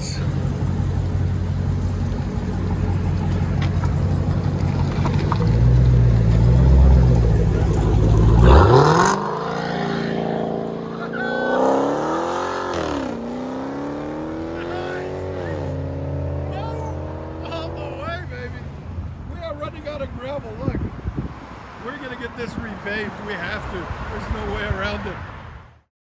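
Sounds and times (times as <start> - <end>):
loud car engine accelerating: 0.0 - 18.1.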